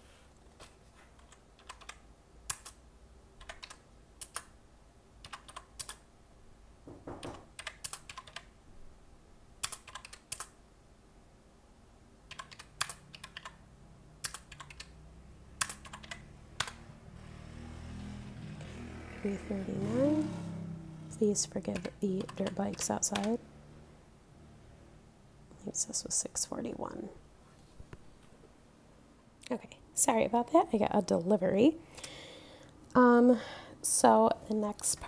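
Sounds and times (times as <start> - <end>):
calculator keys tapping: 1.1 - 2.8, 3.4 - 4.5, 5.2 - 6.0, 7.1 - 8.5, 9.6 - 10.5, 12.3 - 13.6, 14.2 - 14.9, 15.6 - 16.8, 21.4 - 23.4
distant dirt bike engines: 16.2 - 25.0.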